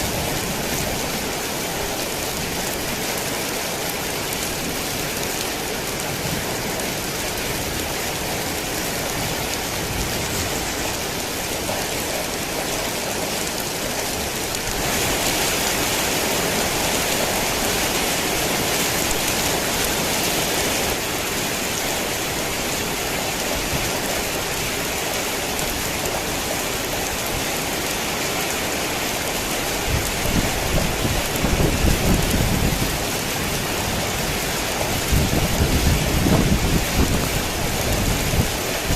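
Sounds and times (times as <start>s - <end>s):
heavy rain: 0.0s - 38.9s
thunder rumbling: 29.9s - 38.9s.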